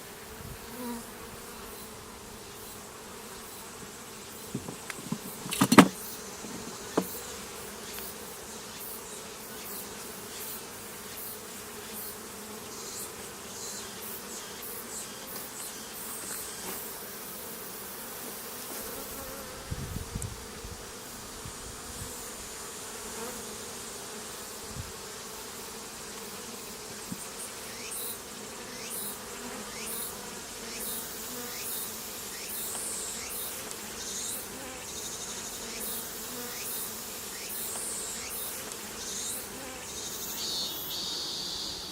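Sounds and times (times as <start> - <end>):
honeybees buzzing: 0.0 - 41.9
soft thumps: 4.5 - 7.2.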